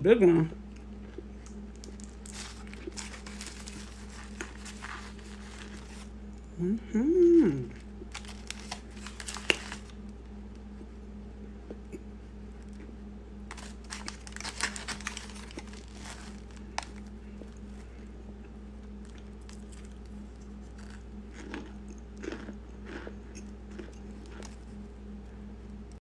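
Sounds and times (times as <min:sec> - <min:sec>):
person crunching and chewing: 0:00.8 - 0:06.2, 0:07.7 - 0:10.1, 0:13.5 - 0:18.1, 0:18.9 - 0:24.8.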